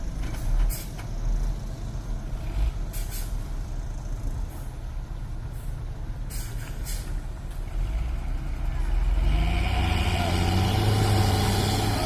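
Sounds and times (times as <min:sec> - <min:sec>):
truck diesel engine rumbling: 0:00.0 - 0:12.0
air brake hisses: 0:02.9 - 0:03.4, 0:05.5 - 0:07.2.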